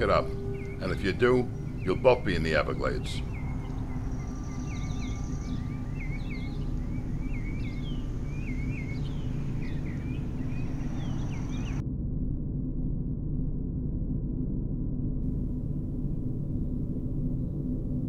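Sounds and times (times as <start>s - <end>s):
birds chirping: 0.0s - 11.8s
low rumbling drone: 0.0s - 18.0s.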